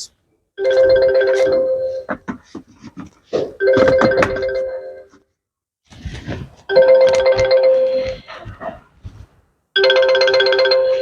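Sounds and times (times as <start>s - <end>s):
electronic chime tune: 9.8s - 11.0s.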